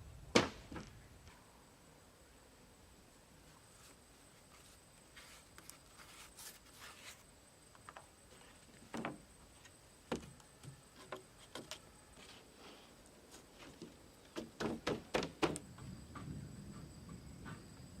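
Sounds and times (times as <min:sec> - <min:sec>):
rustling: 0:03.4 - 0:09.8.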